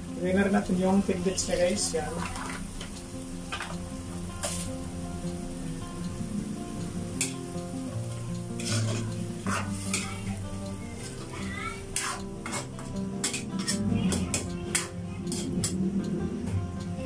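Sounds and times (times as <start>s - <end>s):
background music: 0.0s - 17.0s
sauce sizzling: 0.0s - 17.0s
ladle scraping metal pan: 4.4s - 4.7s, 8.6s - 10.1s, 12.0s - 15.8s.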